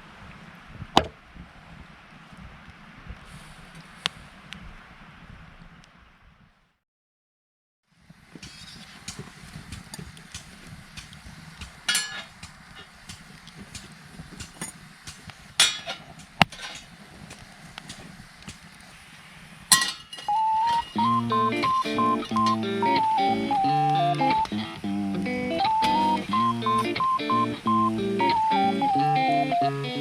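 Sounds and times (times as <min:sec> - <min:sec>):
wood fire crackling: 0:08.2 - 0:30.0.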